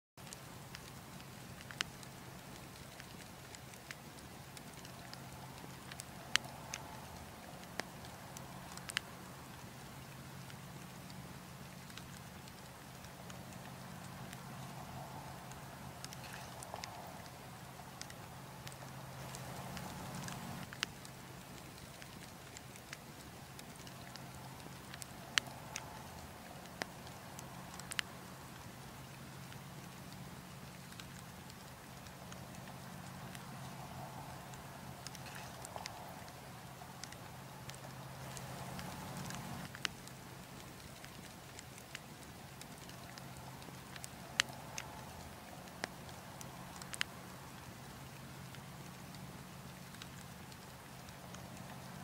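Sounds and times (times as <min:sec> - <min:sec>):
wood fire crackling: 0:00.2 - 0:52.0.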